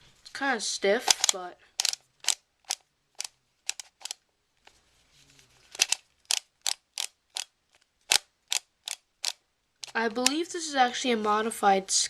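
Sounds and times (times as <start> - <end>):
twisty puzzle clicking: 1.0 - 4.2, 5.7 - 10.5.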